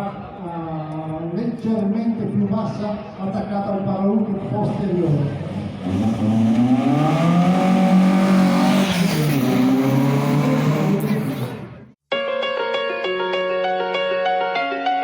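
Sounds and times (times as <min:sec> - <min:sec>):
car engine revving: 0:05.2 - 0:11.9
piano music: 0:12.1 - 0:15.0.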